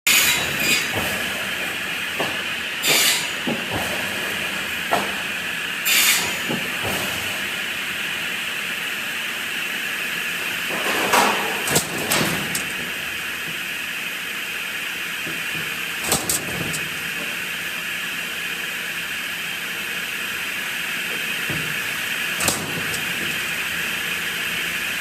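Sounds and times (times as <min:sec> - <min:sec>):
pneumatic knocks: 0:00.1 - 0:04.1, 0:10.7 - 0:13.6, 0:15.2 - 0:17.4, 0:21.1 - 0:24.2
saw line machine hiss: 0:02.8 - 0:03.3, 0:05.8 - 0:06.4.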